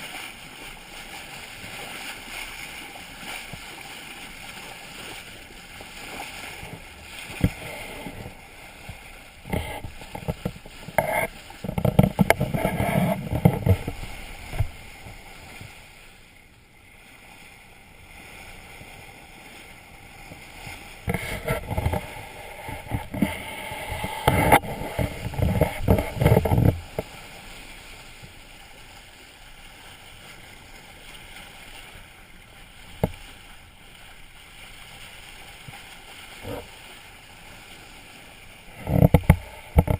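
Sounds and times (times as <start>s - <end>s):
water and wind noise: 0.0s - 39.9s.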